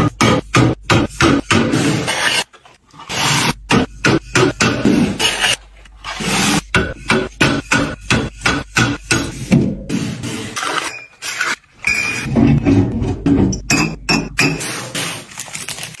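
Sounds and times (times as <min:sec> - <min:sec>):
groceries scraping and rubbing: 0:01.8 - 0:03.6, 0:09.9 - 0:12.4, 0:14.6 - 0:16.0.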